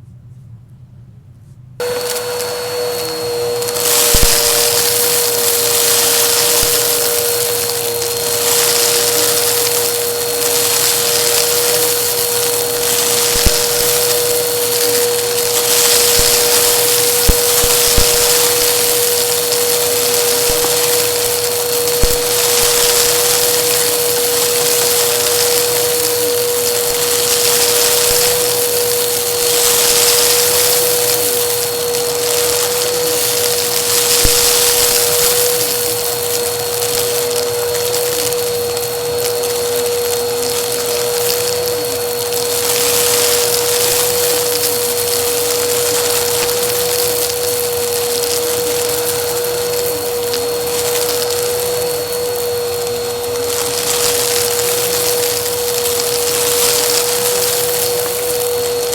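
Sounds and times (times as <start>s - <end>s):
vacuum cleaner running: 1.8s - 58.9s.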